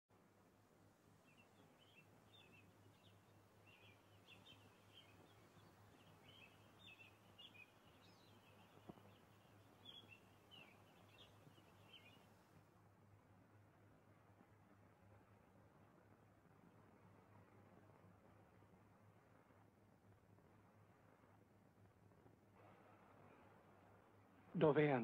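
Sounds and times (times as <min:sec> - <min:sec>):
faint birdsong: 0:00.2 - 0:25.0.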